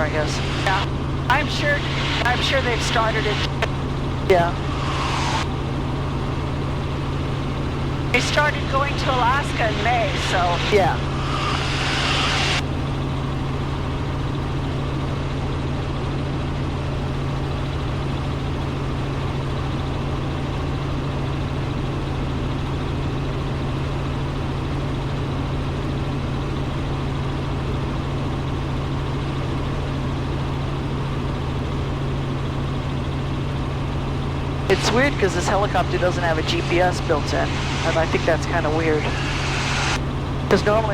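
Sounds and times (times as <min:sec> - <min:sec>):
helicopter rotor and engine drone: 0:00.0 - 0:40.9.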